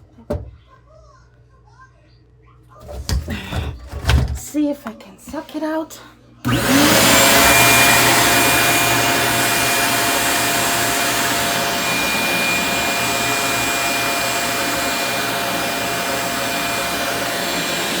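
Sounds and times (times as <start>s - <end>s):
vacuum cleaner motor whining: 6.4s - 18.0s.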